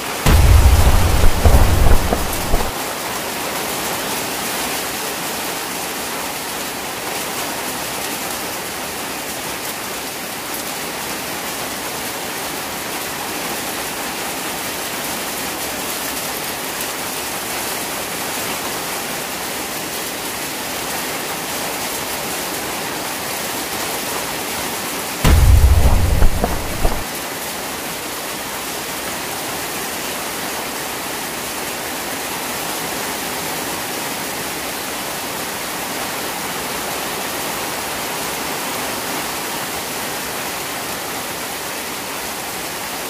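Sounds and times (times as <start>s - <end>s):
heavy rain on water: 0.0s - 43.0s
low thunder rumble: 0.3s - 2.7s, 25.2s - 27.0s.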